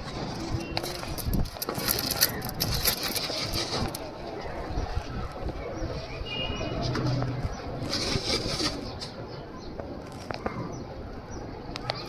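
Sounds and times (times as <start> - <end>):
outdoor background noise: 0.0 - 12.0
pigeons cooing: 6.8 - 9.2.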